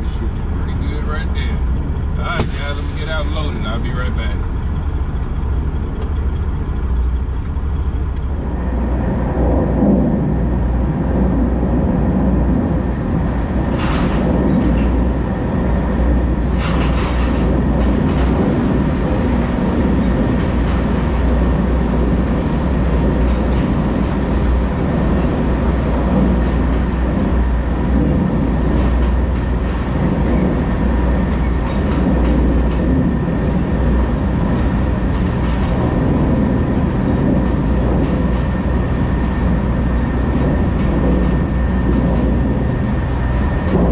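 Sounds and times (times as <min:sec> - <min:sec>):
diesel engine idling: 0:00.0 - 0:13.7.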